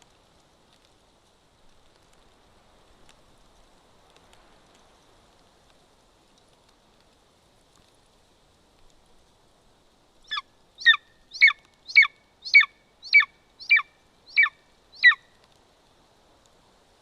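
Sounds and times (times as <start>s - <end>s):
eagle yelping: 10.3s - 15.2s.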